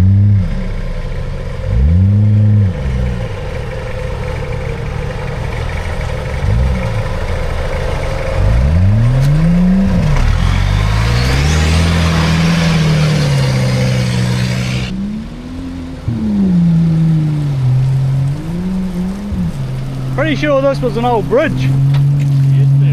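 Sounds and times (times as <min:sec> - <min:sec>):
engine revving under load: 0:00.0 - 0:22.9
loud rushing noise: 0:09.4 - 0:16.6.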